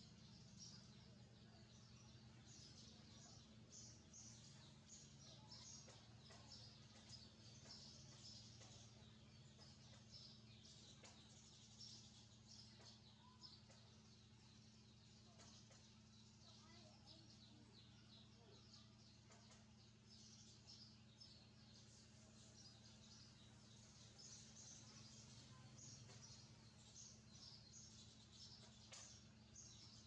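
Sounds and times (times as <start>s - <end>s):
small birds chirping: 0.0s - 30.0s
steady low hum: 0.0s - 30.0s.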